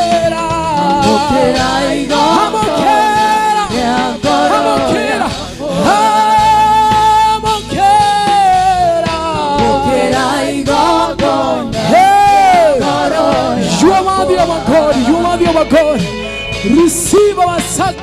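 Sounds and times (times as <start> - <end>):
other voices singing: 0.0 - 16.8
gospel music: 0.0 - 18.0
lead voice singing long notes: 0.7 - 8.2, 9.4 - 15.4.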